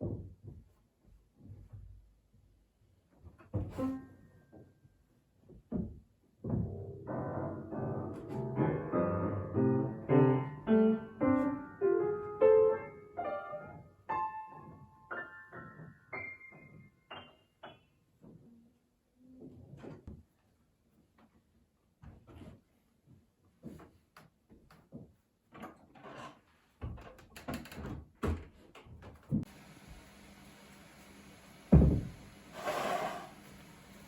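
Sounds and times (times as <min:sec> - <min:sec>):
solo piano notes: 0:07.0 - 0:17.8.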